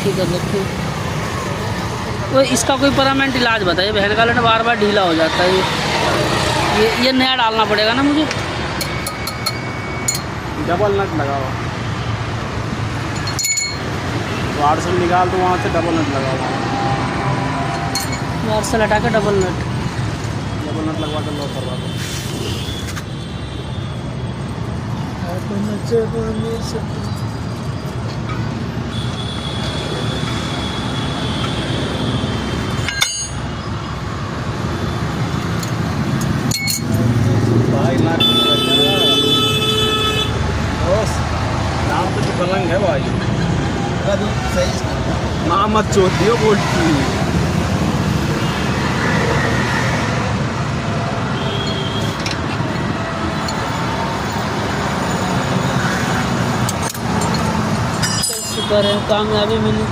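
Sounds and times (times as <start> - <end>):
road traffic: 0.0 - 59.9
sharp metallic clink: 8.8 - 10.3, 13.2 - 13.9, 32.8 - 33.6, 36.2 - 37.1, 56.7 - 58.8.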